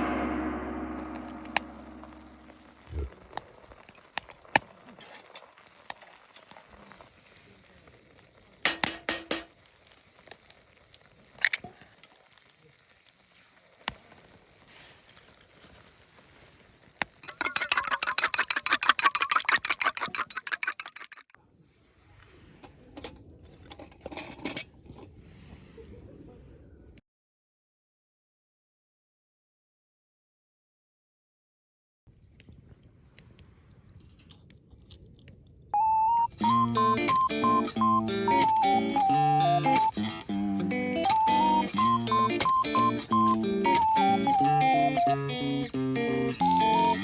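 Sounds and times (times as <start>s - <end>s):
utensils clinking against dishes: 17.2s - 21.3s.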